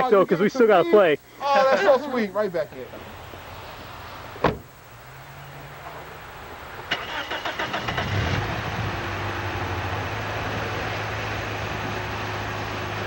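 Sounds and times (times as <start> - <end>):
car engine idling: 2.3 - 13.0
starter motor cranking engine: 6.9 - 8.6.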